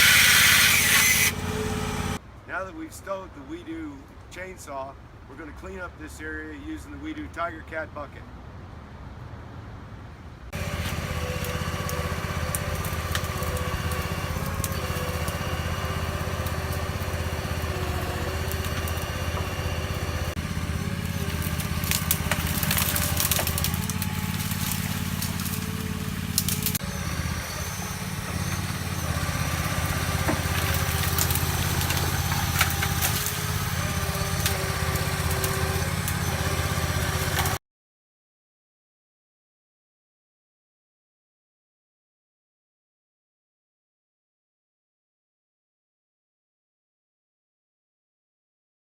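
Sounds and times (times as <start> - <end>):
boat engine running: 1.2 - 2.2, 10.6 - 37.6
crackling and snapping: 10.6 - 26.8, 28.3 - 36.2.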